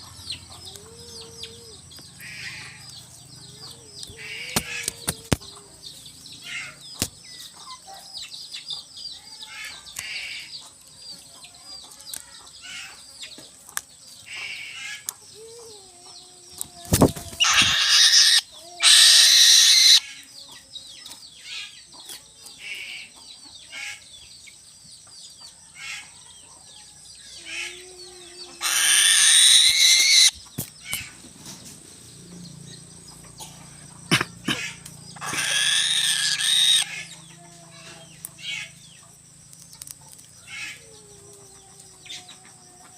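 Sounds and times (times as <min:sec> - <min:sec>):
small birds chirping: 0:00.0 - 0:42.9
bird wings flapping: 0:16.8 - 0:17.8.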